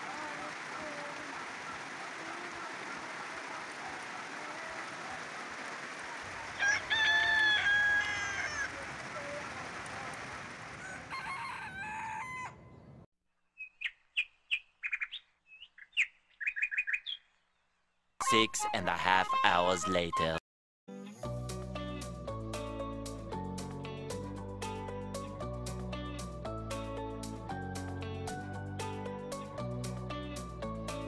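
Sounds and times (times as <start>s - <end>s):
steady rain on vegetation: 0.0s - 11.0s
rooster crowing: 6.4s - 8.8s, 10.7s - 12.8s.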